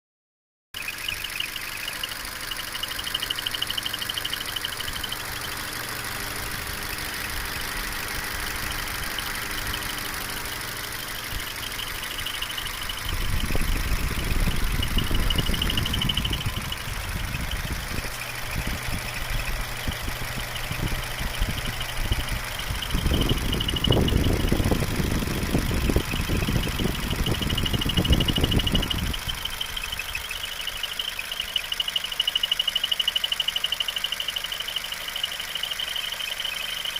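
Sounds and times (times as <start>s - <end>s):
high-pitched belt squeal: 0.8s - 24.8s, 25.5s - 36.9s
car engine idling: 0.8s - 36.9s
low rumbling: 2.0s - 31.4s.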